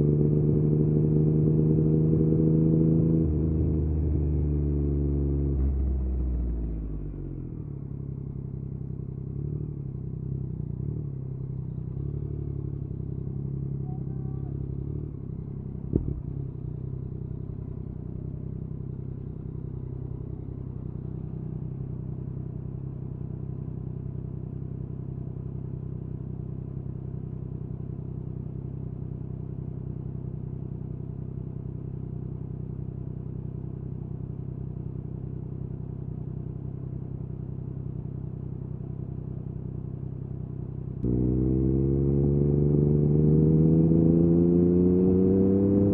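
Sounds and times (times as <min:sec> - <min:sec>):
motorcycle engine idling: 0:06.0 - 0:41.2.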